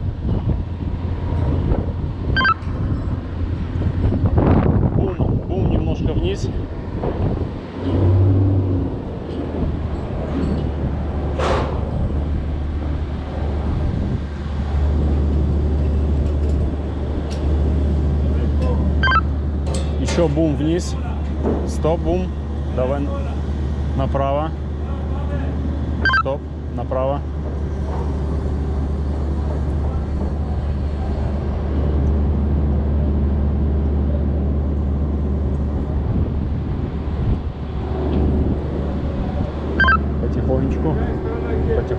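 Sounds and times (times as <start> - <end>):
crane engine running: 0.0 - 5.4, 6.3 - 41.9
wind buffeting microphone: 0.0 - 19.6, 34.8 - 41.9.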